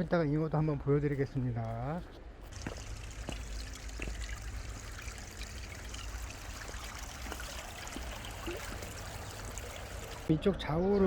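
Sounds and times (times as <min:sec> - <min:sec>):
stream water flowing: 0:02.5 - 0:10.3.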